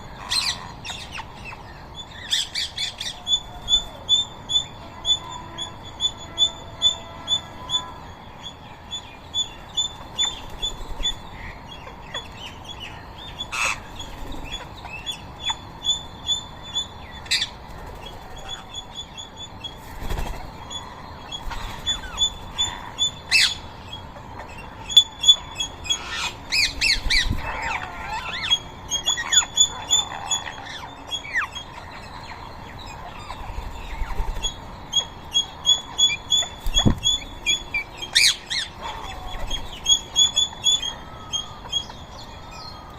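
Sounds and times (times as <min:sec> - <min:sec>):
birds chirping rapidly: 0:00.0 - 0:42.9
parakeets squawking harshly: 0:13.5 - 0:14.6, 0:25.2 - 0:32.0, 0:35.0 - 0:41.6.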